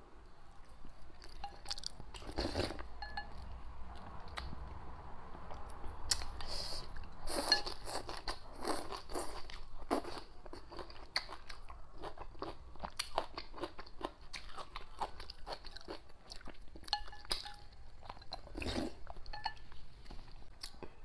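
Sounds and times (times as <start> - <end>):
chopsticks clinking on porcelain: 3.0 - 3.5, 16.8 - 18.5, 19.2 - 19.8
chewing and crunchy bites: 7.9 - 19.0.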